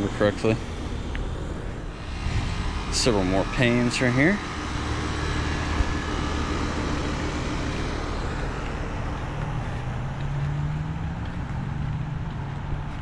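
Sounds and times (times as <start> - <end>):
compressor hum: 0.0 - 13.0
condenser fans rushing: 0.0 - 13.0.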